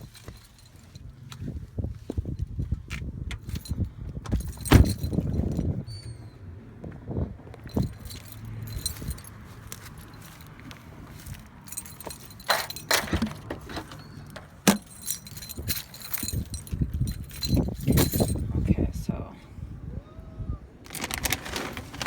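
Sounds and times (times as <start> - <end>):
jangling and clinking: 0.0 - 1.1, 3.4 - 5.8, 7.6 - 18.5.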